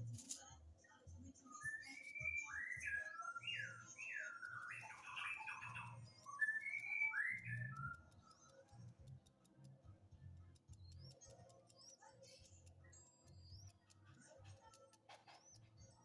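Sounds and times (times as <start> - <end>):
faint sharp ticks: 3.5 - 16.0.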